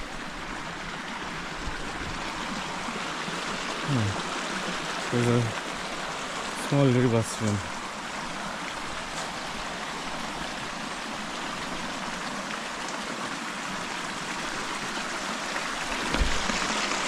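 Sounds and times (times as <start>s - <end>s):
stream flowing: 0.0s - 17.0s
low thump: 16.0s - 16.6s.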